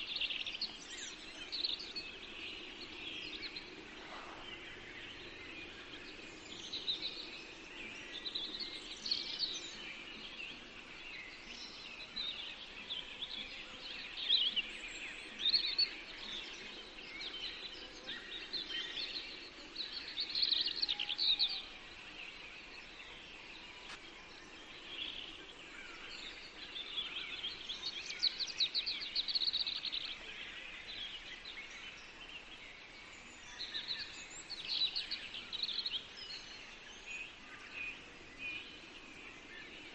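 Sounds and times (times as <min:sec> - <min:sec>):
faint steady hiss: 0:00.0 - 0:39.9
songbirds singing: 0:00.0 - 0:39.9.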